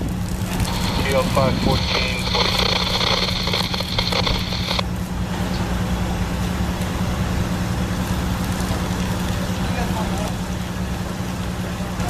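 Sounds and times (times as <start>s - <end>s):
truck engine idling: 0.0s - 12.0s
high-pitched steady noise: 0.4s - 4.8s.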